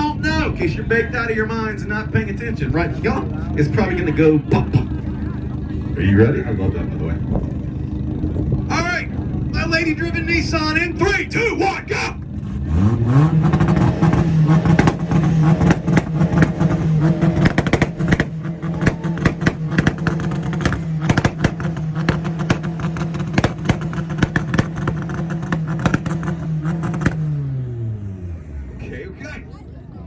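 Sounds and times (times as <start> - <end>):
exhaust popping and crackling: 0.0 - 29.3
car engine on rev limiter: 12.2 - 29.3.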